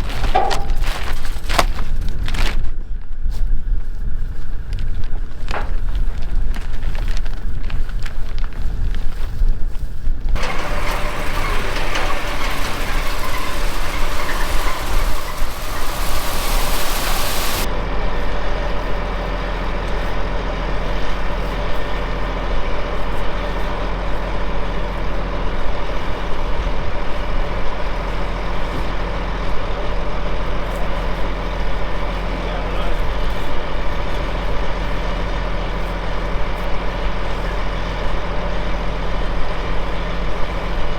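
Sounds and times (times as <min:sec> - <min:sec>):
loud hiss: 0:10.4 - 0:17.7
diesel engine running: 0:10.4 - 0:33.0.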